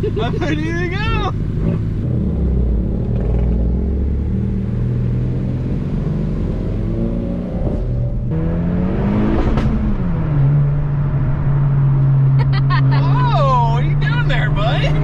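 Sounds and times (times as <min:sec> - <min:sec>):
exhaust crack: 0:00.0 - 0:04.3, 0:09.3 - 0:15.0
car engine accelerating: 0:00.0 - 0:15.0.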